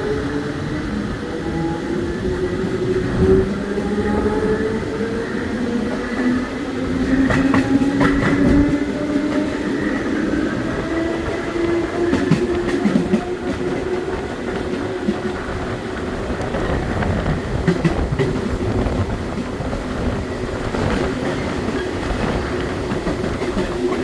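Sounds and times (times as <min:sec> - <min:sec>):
rumble of train wheels: 0:00.0 - 0:24.0
wheels clicking over rail joints: 0:05.5 - 0:24.0.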